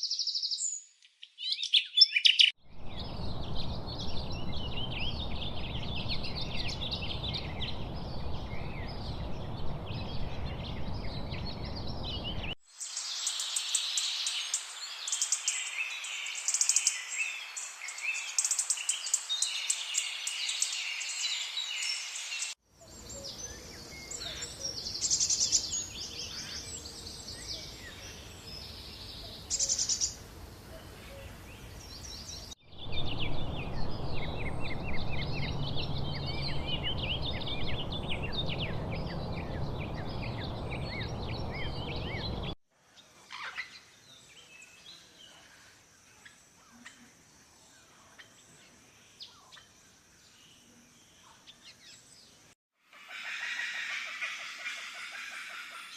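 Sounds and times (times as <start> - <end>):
birds chirping and trilling: 0.0 - 55.9
steady background hiss: 12.7 - 32.4.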